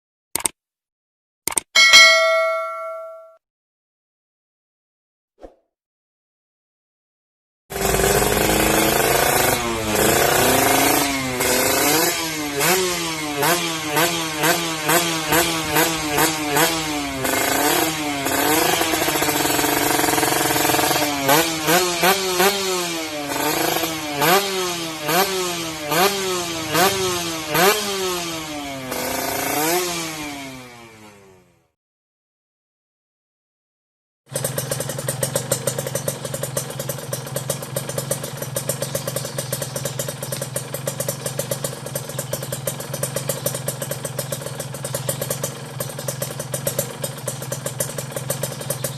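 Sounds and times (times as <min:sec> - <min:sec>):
two-stroke motorcycle engine revving: 0:07.7 - 0:31.8, 0:34.3 - 0:48.9.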